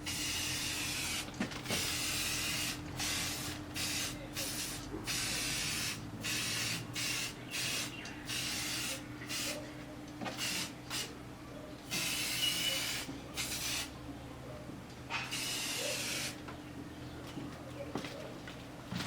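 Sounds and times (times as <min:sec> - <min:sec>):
spray paint can hissing: 0:00.1 - 0:09.6, 0:10.4 - 0:11.1, 0:11.9 - 0:13.9, 0:15.3 - 0:16.4.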